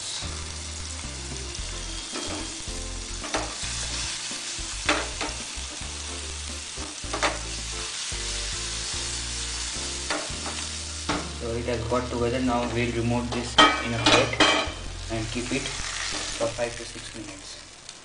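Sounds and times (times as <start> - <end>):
vegetables sizzling in hot oil: 0.0 - 18.0
pan clanking on burner: 2.1 - 2.5, 3.2 - 3.6, 4.9 - 5.4, 7.0 - 7.5, 10.1 - 11.3, 12.6 - 14.8.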